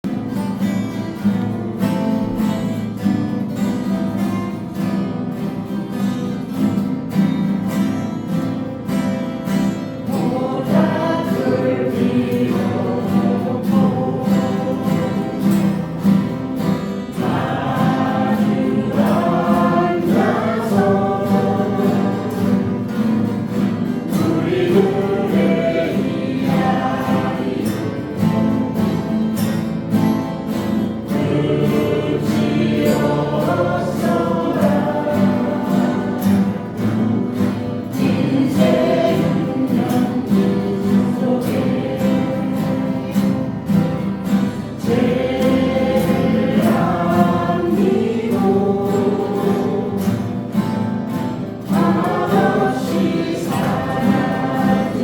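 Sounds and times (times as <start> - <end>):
acoustic guitars strummed: 0.0 - 55.0
group of voices singing: 9.4 - 55.0.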